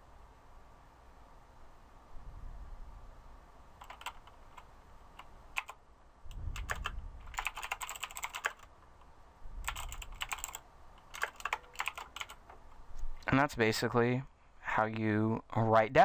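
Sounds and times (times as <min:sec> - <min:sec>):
computer keyboard typing: 0:03.8 - 0:05.8, 0:06.5 - 0:08.7, 0:09.6 - 0:12.5.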